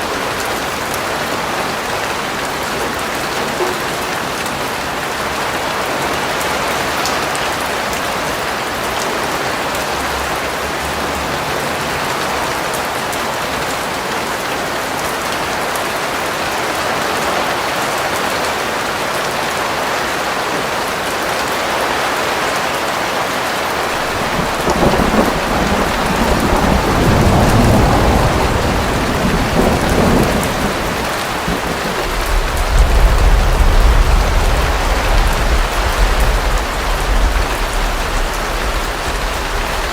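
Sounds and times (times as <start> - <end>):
heavy rain: 0.0 - 39.9
thunder rumbling: 23.8 - 39.9.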